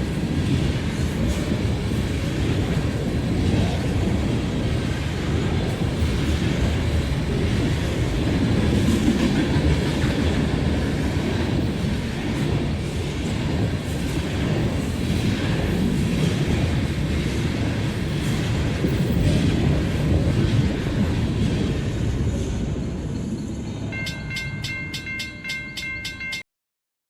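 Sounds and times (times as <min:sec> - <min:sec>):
rail clatter: 0:00.0 - 0:26.4
train rumbling past: 0:00.0 - 0:26.4
ringing dings: 0:23.9 - 0:26.4.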